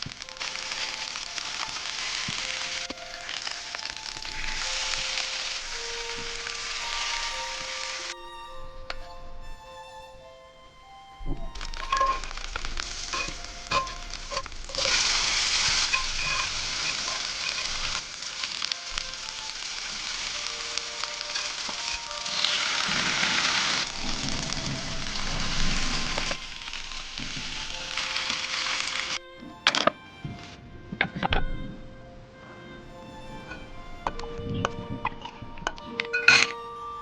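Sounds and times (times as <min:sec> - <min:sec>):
campfire crackles and clicks: 0:00.0 - 0:08.2, 0:11.2 - 0:29.9.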